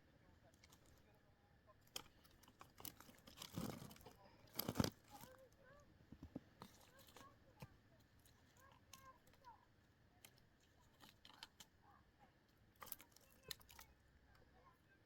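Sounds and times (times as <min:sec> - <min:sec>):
faint clicks and knocks: 0:01.8 - 0:11.8, 0:12.5 - 0:14.7.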